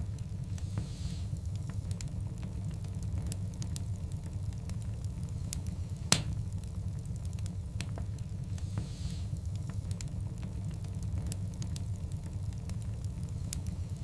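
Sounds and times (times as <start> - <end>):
wood fire burning: 0.0 - 14.0
loud sharp pop: 6.1 - 6.4.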